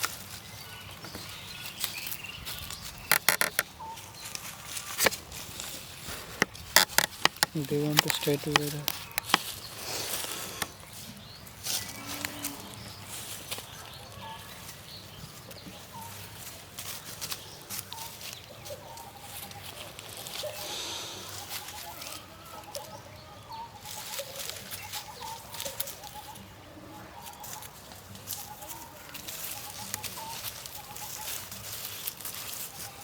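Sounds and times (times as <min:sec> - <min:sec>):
rustling: 0:27.2 - 0:33.0.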